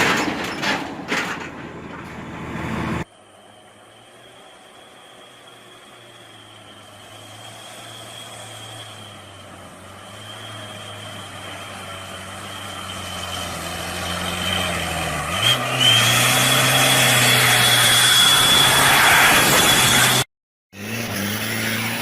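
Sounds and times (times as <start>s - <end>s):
vehicle engine revving: 6.8s - 22.0s.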